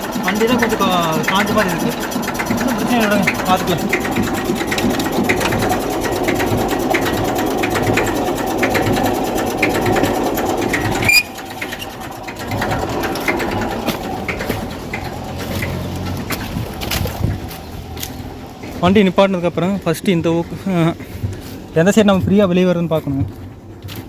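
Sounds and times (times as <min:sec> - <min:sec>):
tractor diesel engine clatter: 0:00.0 - 0:24.0.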